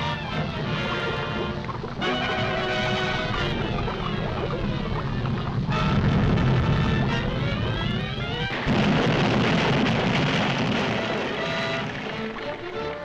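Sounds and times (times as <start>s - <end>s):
dramatic orchestral music: 0.0s - 8.7s, 10.8s - 13.0s
volcanic eruption rumble: 3.2s - 12.6s.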